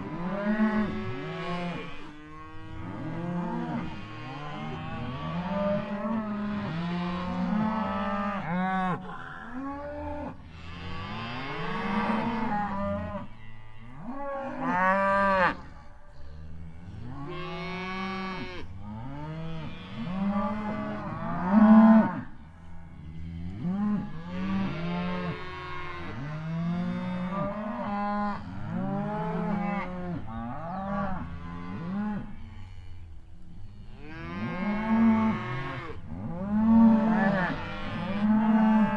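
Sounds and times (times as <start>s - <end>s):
cows mooing: 0.0s - 22.3s, 33.9s - 38.9s.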